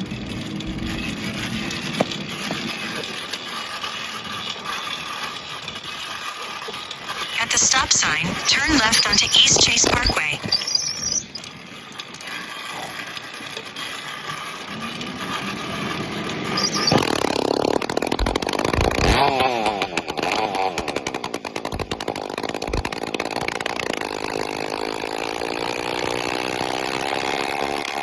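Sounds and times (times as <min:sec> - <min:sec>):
unmuffled two-stroke engine revving: 0:15.0 - 0:21.3, 0:24.0 - 0:28.0.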